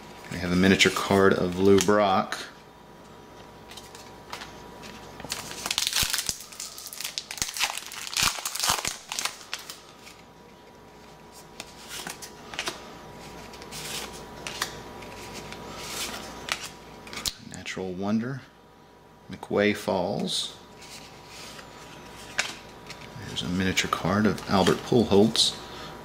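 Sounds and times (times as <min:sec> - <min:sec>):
wrapper crinkling and rustling: 0:03.7 - 0:10.3.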